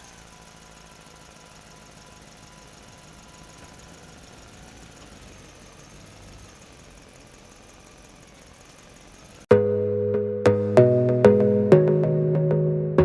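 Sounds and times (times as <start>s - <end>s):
music with plucked notes: 9.5s - 13.0s.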